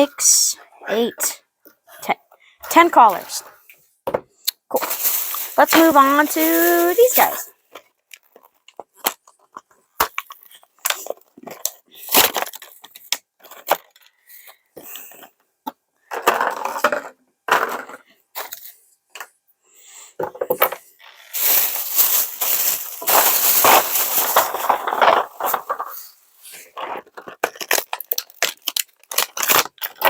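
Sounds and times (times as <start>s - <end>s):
plastic bags tearing and crinkling: 4.7s - 7.5s, 12.0s - 12.7s, 21.3s - 26.2s, 27.4s - 30.0s.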